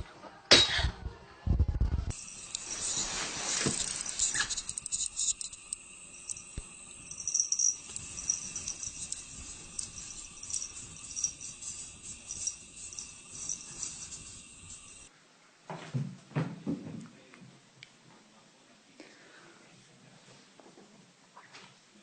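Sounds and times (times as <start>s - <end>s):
faint steady high tone: 2.1s - 15.1s
high-pitched jingling and rattling: 2.1s - 15.1s.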